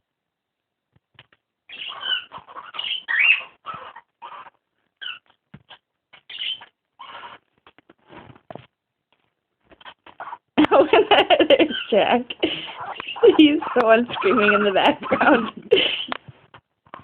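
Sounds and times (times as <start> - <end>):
baby raccoon screaming: 1.7 - 7.5, 9.8 - 10.6, 11.6 - 15.7.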